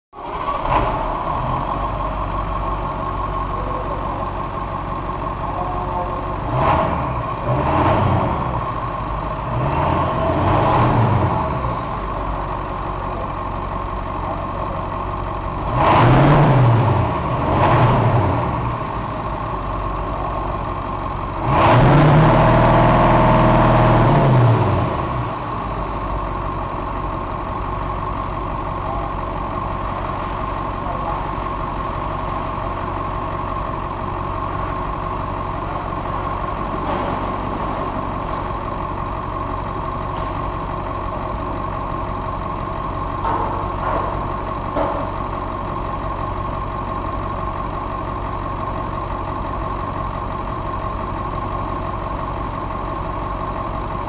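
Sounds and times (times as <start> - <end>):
diesel engine idling and revving: 0.1 - 54.0.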